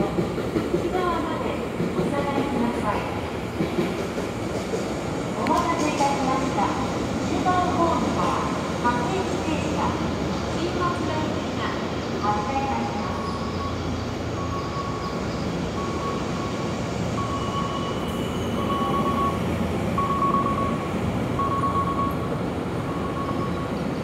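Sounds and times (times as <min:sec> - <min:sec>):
electric train rumbling: 0:00.0 - 0:24.0
short high beeps: 0:17.2 - 0:19.4, 0:20.0 - 0:20.8, 0:21.4 - 0:22.2.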